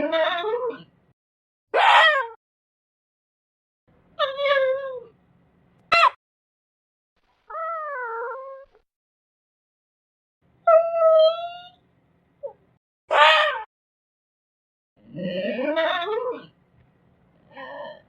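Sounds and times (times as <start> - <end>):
cat meowing: 7.5 - 8.8.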